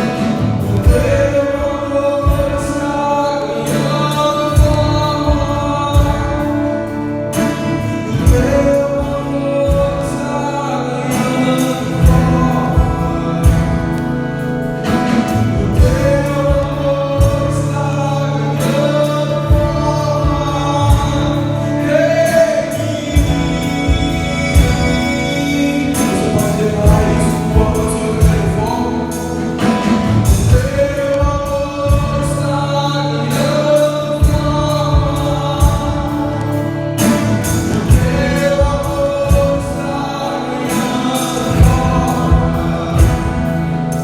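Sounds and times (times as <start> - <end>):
bass: 0.0 - 44.0
people singing: 0.0 - 44.0
drum beat: 23.1 - 32.5, 34.1 - 44.0.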